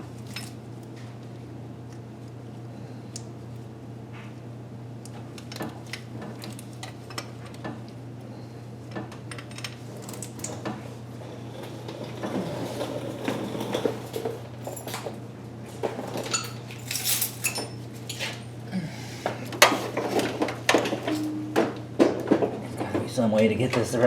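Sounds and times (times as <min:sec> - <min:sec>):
steady low hum: 0:00.0 - 0:16.0, 0:16.6 - 0:24.0
tools and metal parts clinking: 0:09.3 - 0:10.6, 0:12.0 - 0:18.4, 0:19.6 - 0:21.4.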